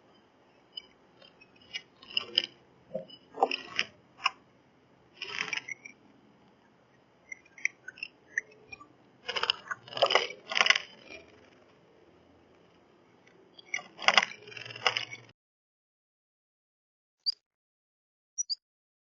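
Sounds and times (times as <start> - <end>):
bird pecking seeds on tray: 9.2 - 11.6.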